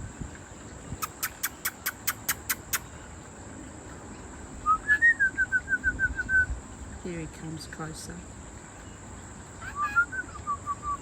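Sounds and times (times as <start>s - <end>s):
insect high-pitched drone: 0.0s - 11.0s
bird whistled notes: 0.9s - 2.9s, 4.6s - 6.6s, 9.6s - 11.0s
bird sharp chips: 1.0s - 2.9s.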